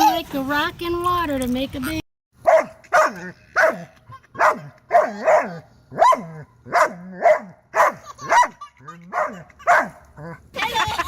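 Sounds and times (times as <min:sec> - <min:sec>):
dog barking: 0:02.4 - 0:10.0.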